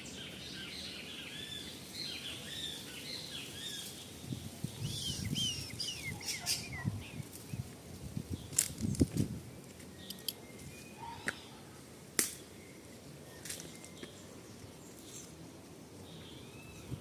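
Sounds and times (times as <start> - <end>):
bird chirps and calls: 0.0 - 7.3.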